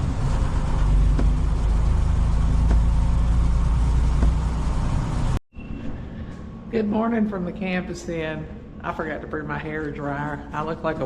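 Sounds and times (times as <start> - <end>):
vehicle engine and road rumble: 0.0 - 5.4.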